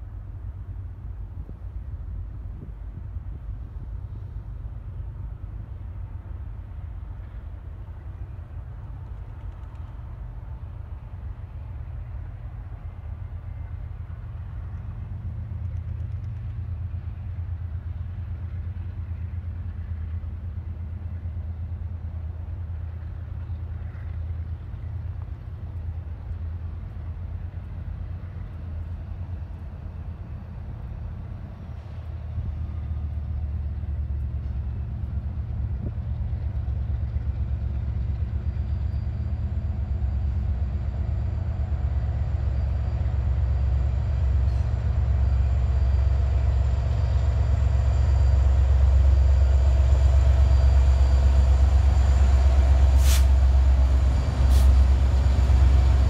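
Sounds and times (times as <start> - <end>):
locomotive engine rumble: 0.0 - 56.0.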